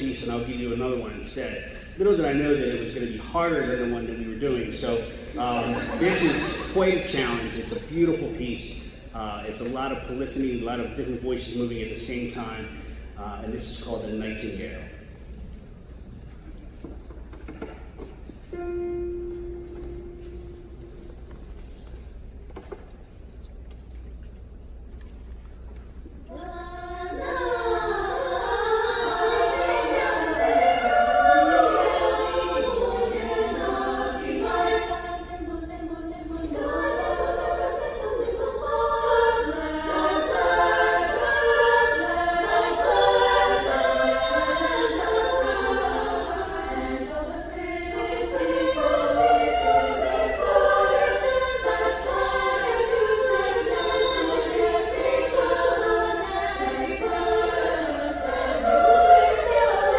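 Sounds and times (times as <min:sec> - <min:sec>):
female choir singing: 0:05.0 - 0:07.6, 0:26.3 - 0:59.9.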